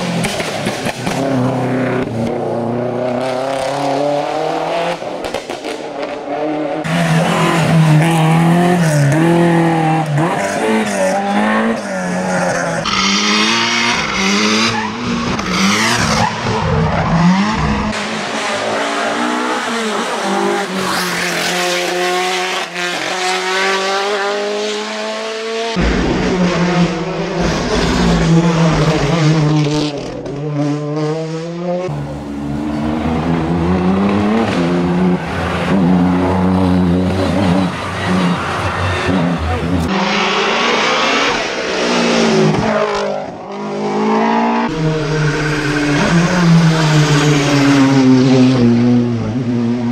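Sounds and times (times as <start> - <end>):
race car engines revving: 0.0 - 49.9.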